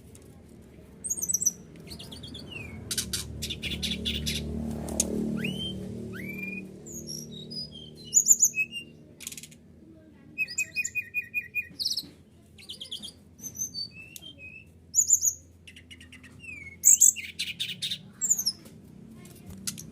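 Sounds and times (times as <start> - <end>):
songbird calling: 1.0 - 4.5, 5.4 - 9.0, 10.4 - 18.6.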